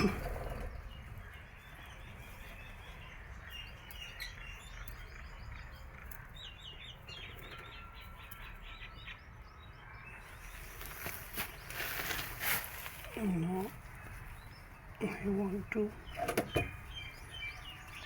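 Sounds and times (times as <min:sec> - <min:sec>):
lovebirds chirping: 0:00.0 - 0:18.0.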